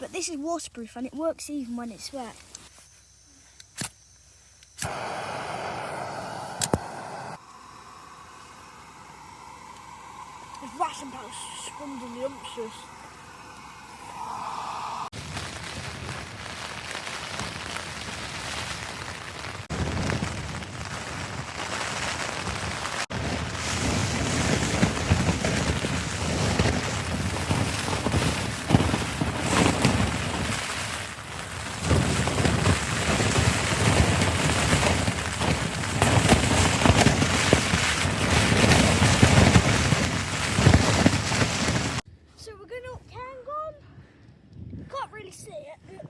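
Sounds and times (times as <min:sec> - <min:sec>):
blizzard wind gusting: 0:04.8 - 0:16.5, 0:19.6 - 0:42.0.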